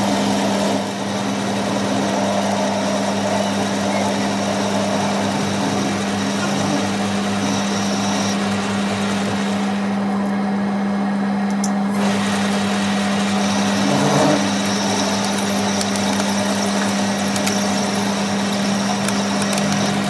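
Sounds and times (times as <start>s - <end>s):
workshop machine humming: 0.0s - 20.0s.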